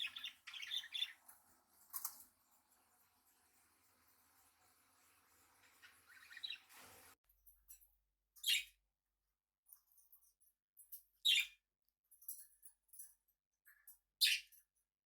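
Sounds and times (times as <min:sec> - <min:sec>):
loud high bird chirps: 0:00.0 - 0:01.2, 0:05.6 - 0:07.1
budgerigars twittering: 0:00.0 - 0:01.3, 0:05.4 - 0:07.1.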